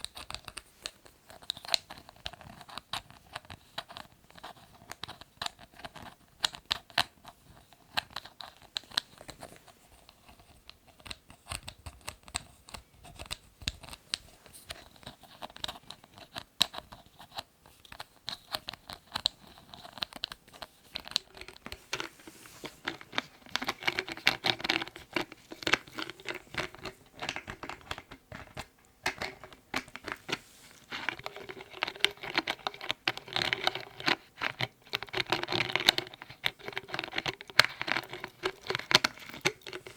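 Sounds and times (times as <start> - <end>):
scratching and rustling: 0.0 - 39.9
lids tapping and clicking: 21.0 - 39.9.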